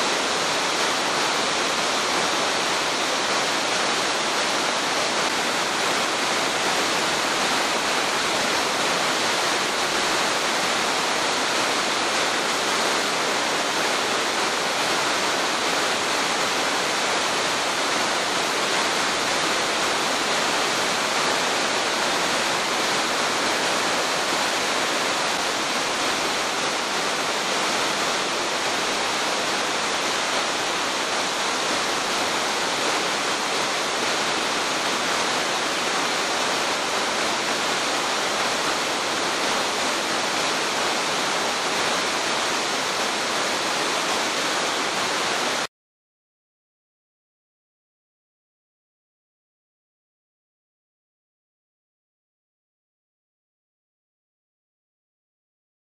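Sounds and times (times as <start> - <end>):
waterfall rushing: 0.0 - 45.7.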